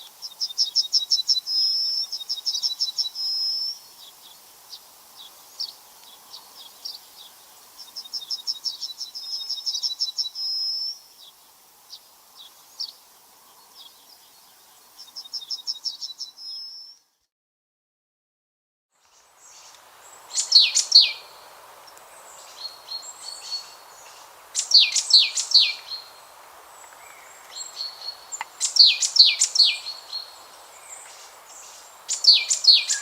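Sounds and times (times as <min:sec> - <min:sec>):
songbird singing: 0:00.0 - 0:17.3, 0:19.0 - 0:33.0
bird chirps: 0:19.0 - 0:21.4, 0:22.3 - 0:26.2, 0:26.8 - 0:33.0.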